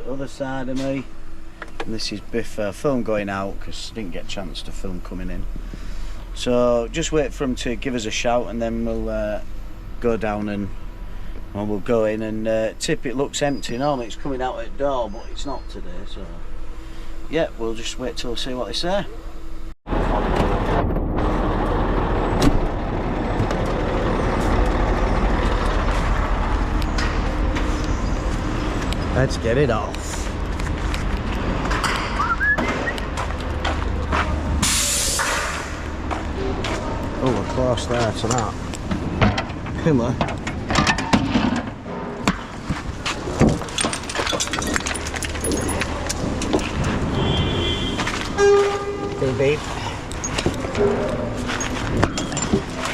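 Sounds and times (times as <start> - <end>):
lorry engine rumbling: 0.0 - 52.9
lorry engine running: 15.6 - 34.7
jangling rattles: 43.4 - 47.0.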